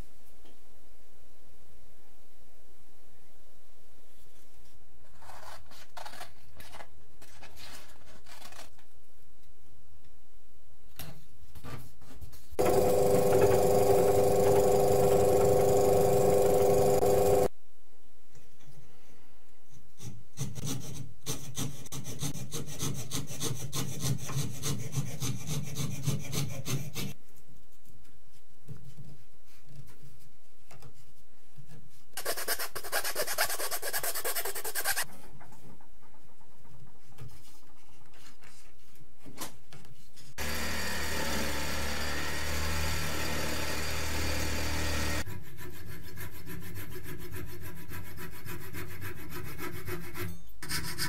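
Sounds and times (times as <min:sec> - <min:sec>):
electric motor humming: 0:12.6 - 0:17.5, 0:40.4 - 0:45.2.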